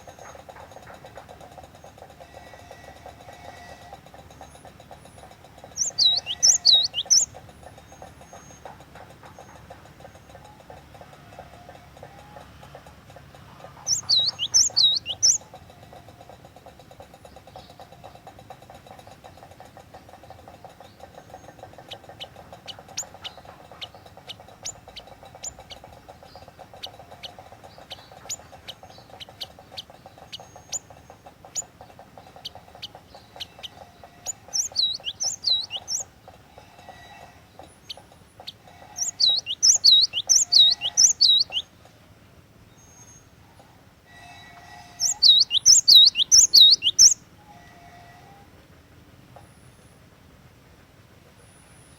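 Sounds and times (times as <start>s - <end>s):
bird chirps: 4.4s - 8.7s, 13.5s - 15.5s, 20.6s - 36.1s, 37.5s - 41.8s, 44.9s - 47.3s
bird calling high notes: 5.8s - 7.3s, 13.9s - 15.4s, 38.9s - 41.7s, 45.0s - 47.7s.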